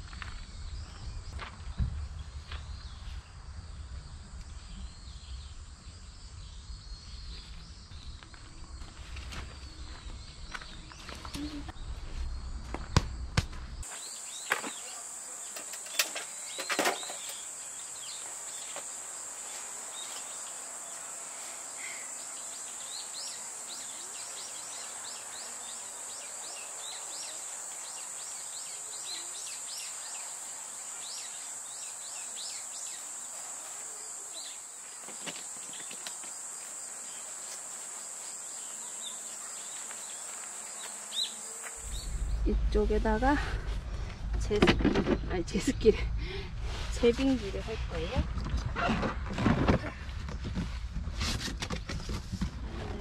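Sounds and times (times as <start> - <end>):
high-pitched insect drone: 13.8 - 43.2.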